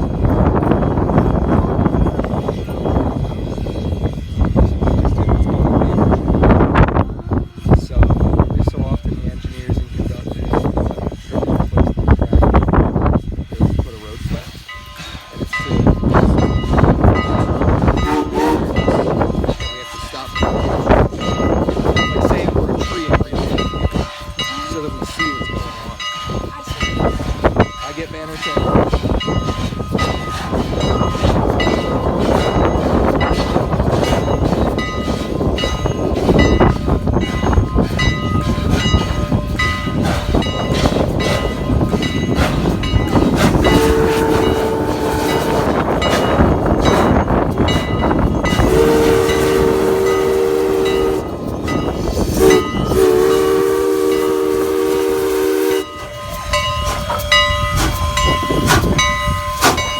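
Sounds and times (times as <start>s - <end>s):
steam locomotive running: 0.0s - 59.9s
steam whistle blowing: 16.7s - 19.6s, 29.6s - 47.2s, 48.5s - 59.8s.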